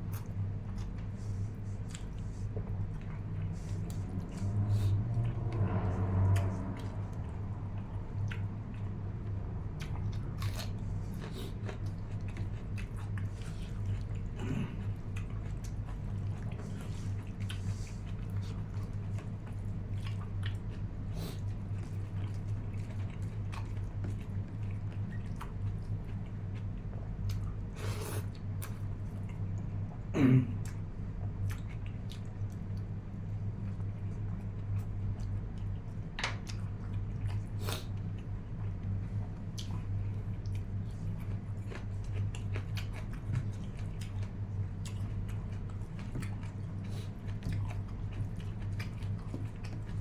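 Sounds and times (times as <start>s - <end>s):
person chewing food: 0.0s - 30.0s, 30.6s - 50.0s
steady low hum: 0.0s - 50.0s.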